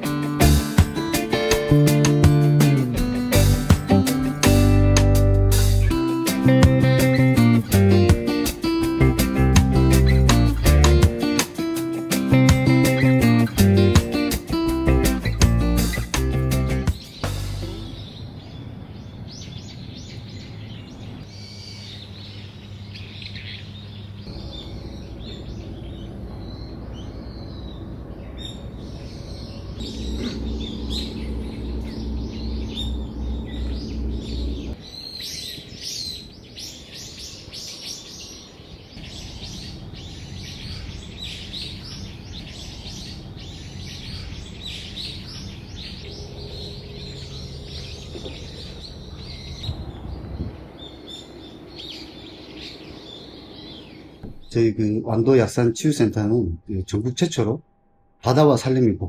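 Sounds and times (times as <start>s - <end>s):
small birds chirping: 0.0s - 54.7s
low steady hum: 14.6s - 35.0s, 38.9s - 59.0s.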